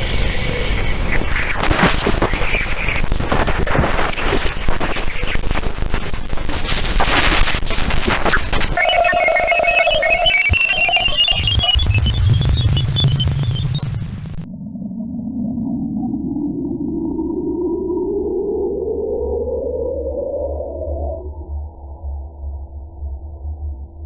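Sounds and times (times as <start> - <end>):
crackling static: 0.0 - 14.5
warbling electronic tones: 8.2 - 14.5.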